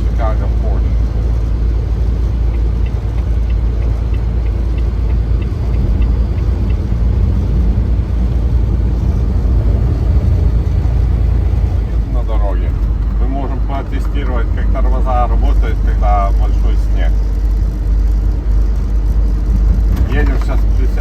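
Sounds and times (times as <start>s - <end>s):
vehicle engine and road rumble: 0.0s - 21.0s
faint regular ticking: 0.9s - 8.3s.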